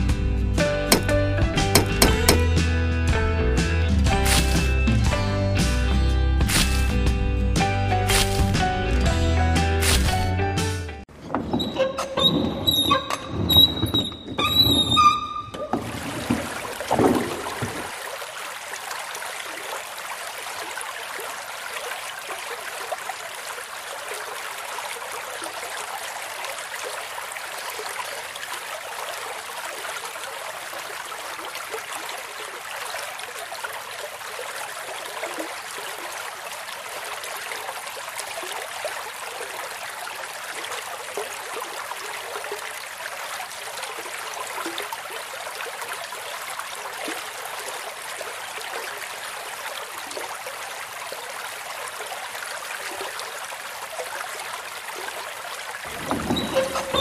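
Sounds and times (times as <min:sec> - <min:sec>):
water trickling into basin: 0:55.4 - 0:57.0.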